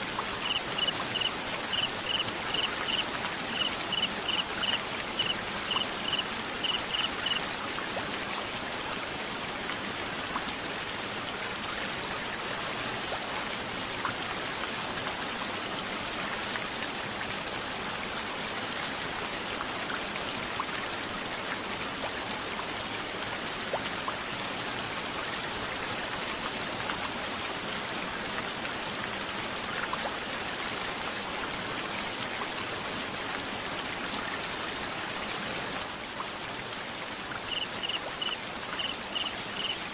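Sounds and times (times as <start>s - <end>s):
steady water hiss: 0.0s - 39.9s
cricket chirping: 0.4s - 7.4s, 37.5s - 39.8s
water drops ticking: 0.4s - 7.4s, 37.5s - 39.8s.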